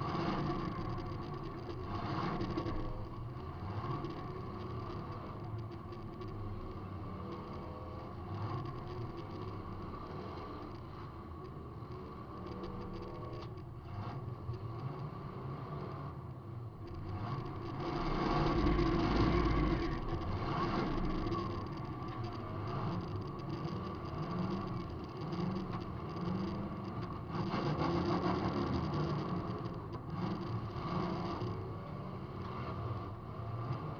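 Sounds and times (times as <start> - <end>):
car engine revving: 17.0 - 33.9.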